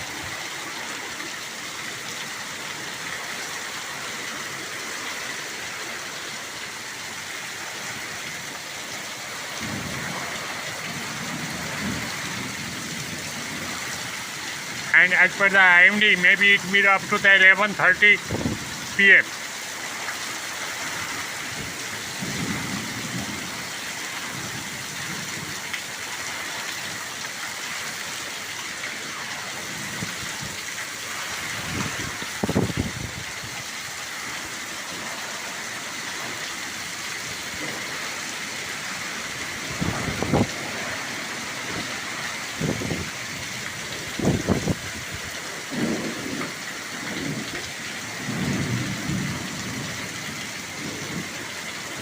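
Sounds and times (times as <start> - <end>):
heavy rain hissing: 0.0 - 52.0
low thunder rumbles: 9.4 - 13.9, 18.2 - 19.0, 21.6 - 25.5, 39.6 - 40.8, 44.0 - 47.6, 48.2 - 51.4.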